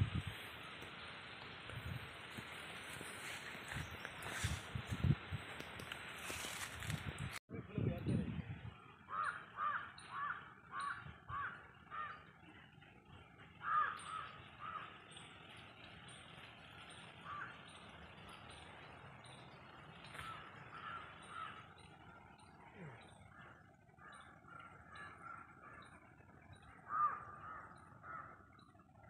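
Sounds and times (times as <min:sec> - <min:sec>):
bird calling: 0:08.7 - 0:29.0.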